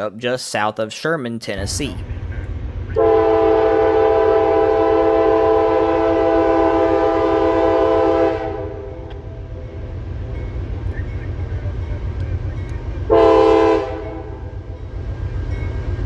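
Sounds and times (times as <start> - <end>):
locomotive air horn blast: 1.6 - 9.7, 13.0 - 14.8
train rumbling: 1.6 - 16.0.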